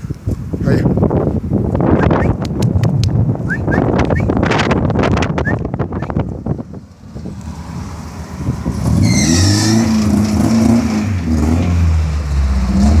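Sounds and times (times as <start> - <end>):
high squeal: 8.9 - 9.9.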